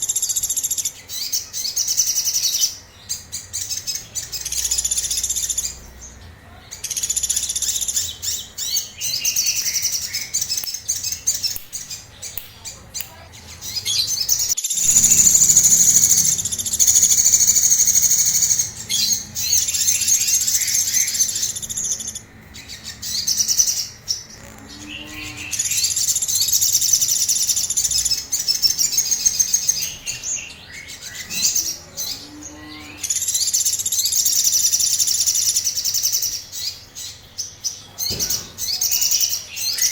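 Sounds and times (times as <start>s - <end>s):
songbird chirping trills: 0.0s - 39.9s.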